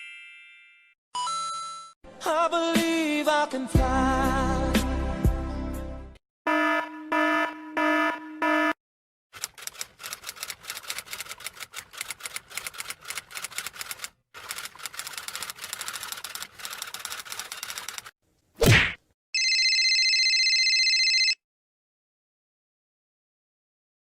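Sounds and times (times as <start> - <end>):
typewriter keys clacking: 9.4 - 18.1.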